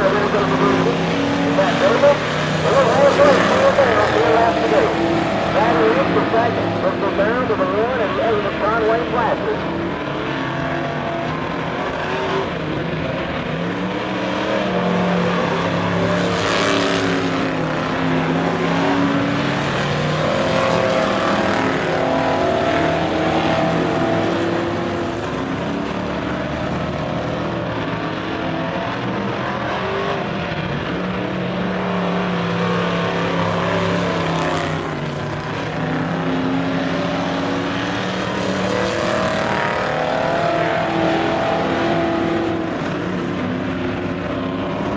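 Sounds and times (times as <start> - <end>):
race car engines passing: 0.0 - 44.9.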